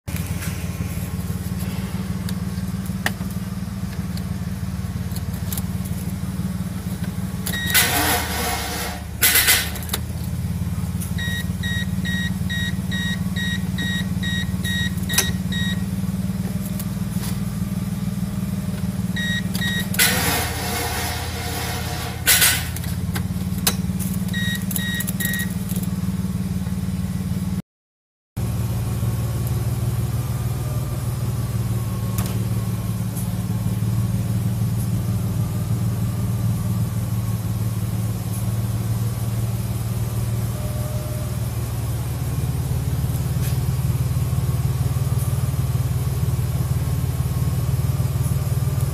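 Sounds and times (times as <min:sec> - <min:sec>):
car engine starting and idling: 0:00.1 - 0:27.6, 0:28.4 - 0:48.9
short electronic beeps: 0:07.5 - 0:08.3, 0:11.2 - 0:15.9, 0:19.2 - 0:20.8, 0:24.3 - 0:25.7.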